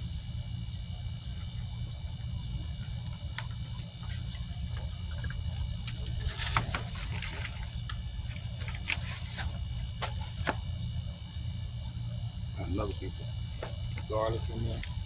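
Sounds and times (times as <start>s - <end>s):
steady low rumble: 0.0s - 15.0s
soil and debris crackling: 0.9s - 11.6s.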